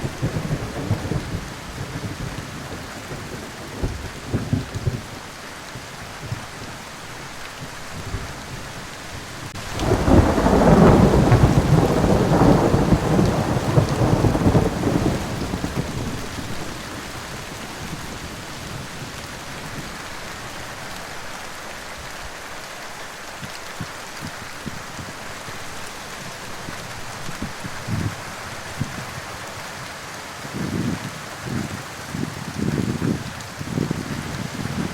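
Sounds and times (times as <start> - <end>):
rain falling: 0.0 - 34.9
thunder rolling: 9.6 - 18.2.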